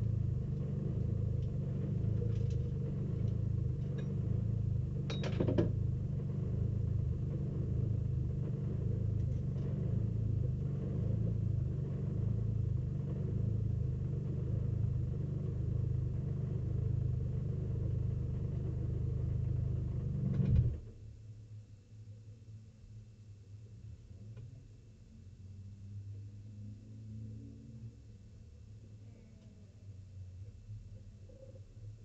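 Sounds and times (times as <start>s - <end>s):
race car engine idling: 0.0s - 20.4s.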